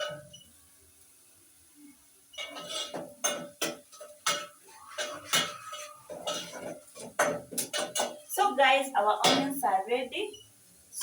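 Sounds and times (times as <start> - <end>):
metal spoon scraping a pan: 0.0 - 0.4, 2.3 - 8.4.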